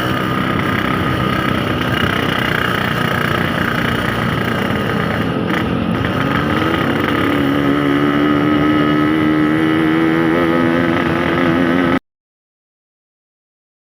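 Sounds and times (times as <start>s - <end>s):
two-stroke motorcycle engine: 0.0s - 12.0s.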